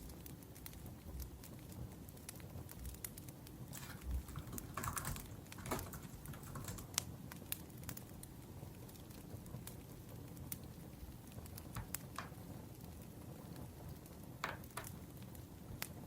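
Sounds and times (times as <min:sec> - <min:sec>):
wood fire crackling: 0:00.0 - 0:16.0
typing on laptop keyboard: 0:03.8 - 0:07.1.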